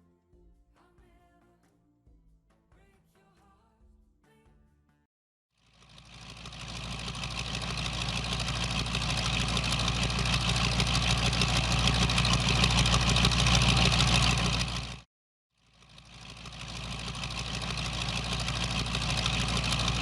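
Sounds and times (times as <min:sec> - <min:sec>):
car engine running: 0:05.8 - 0:15.1, 0:15.8 - 0:20.0.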